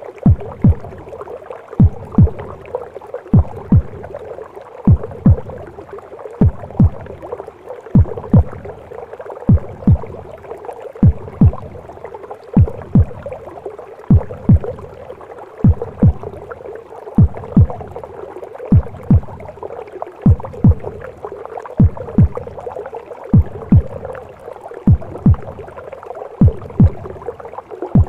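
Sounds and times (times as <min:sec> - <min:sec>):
heartbeat thumps: 0:00.2 - 0:01.2, 0:01.8 - 0:02.7, 0:03.3 - 0:04.2, 0:04.9 - 0:05.7, 0:06.4 - 0:07.3, 0:08.0 - 0:08.8, 0:09.5 - 0:10.4, 0:11.0 - 0:12.0, 0:12.6 - 0:15.0, 0:15.6 - 0:16.5, 0:17.2 - 0:18.1, 0:18.7 - 0:19.6, 0:20.2 - 0:21.2, 0:21.8 - 0:24.2, 0:24.9 - 0:25.8, 0:26.4 - 0:27.4.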